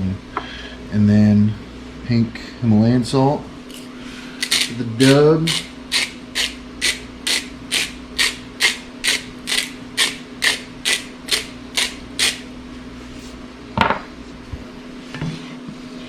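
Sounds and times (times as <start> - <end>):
salt grinder rasping: 4.4 - 12.5.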